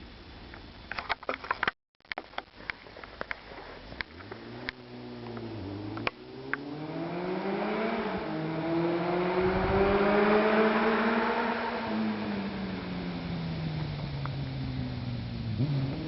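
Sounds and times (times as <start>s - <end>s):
motorcycle engine revving: 4.0s - 16.0s.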